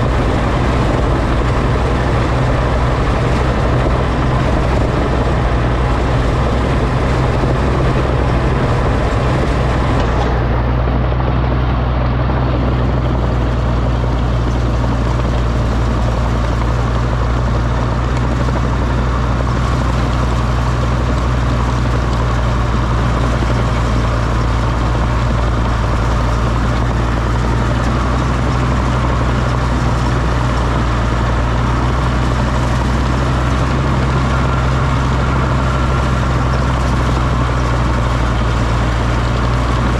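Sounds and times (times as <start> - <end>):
crawler tractor engine running: 0.0 - 39.9.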